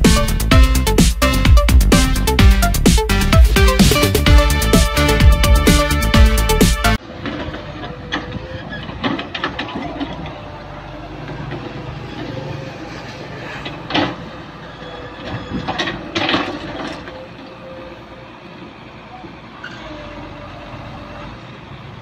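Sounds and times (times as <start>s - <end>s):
excavator engine running: 0.0s - 22.0s
clanks and scrapes: 7.2s - 10.4s, 11.3s - 14.3s, 15.1s - 17.2s.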